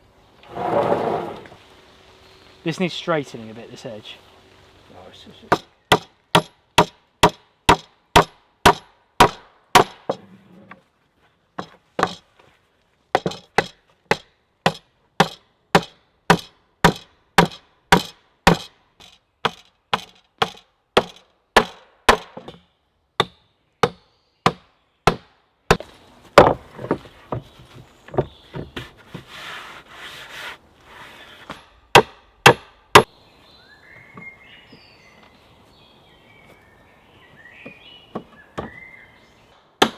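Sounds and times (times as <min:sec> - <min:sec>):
hand tool striking wood: 0:05.5 - 0:10.3, 0:11.6 - 0:12.3, 0:13.2 - 0:22.6, 0:23.2 - 0:29.3, 0:31.4 - 0:33.1.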